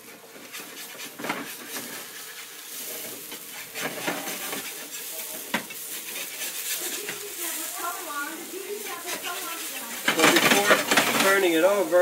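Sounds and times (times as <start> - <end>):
spatula scraping a pan: 0.0 - 11.9
potato pancake sizzling: 0.0 - 12.0.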